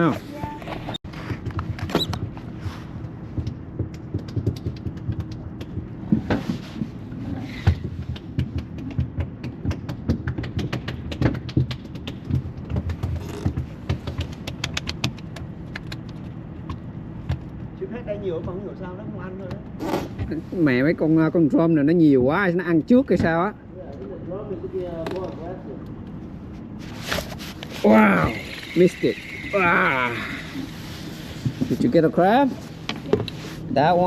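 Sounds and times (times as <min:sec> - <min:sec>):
low steady rumble: 0:15.0 - 0:34.0.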